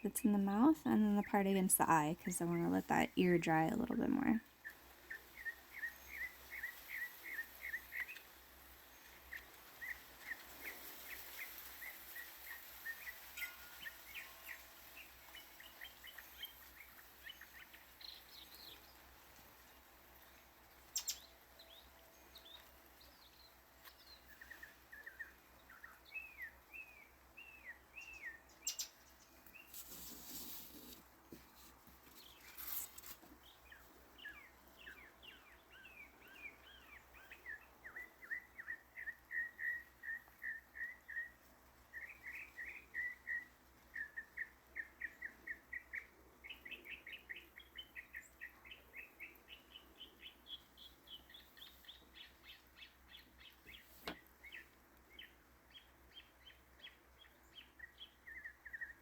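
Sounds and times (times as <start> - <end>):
rustling: 29.3 - 34.1.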